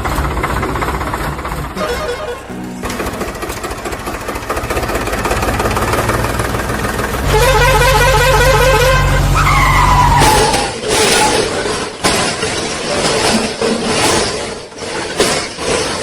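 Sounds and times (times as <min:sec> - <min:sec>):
tone falling in pitch: 0:01.8 - 0:04.0
warbling horn-like tone: 0:07.2 - 0:10.0.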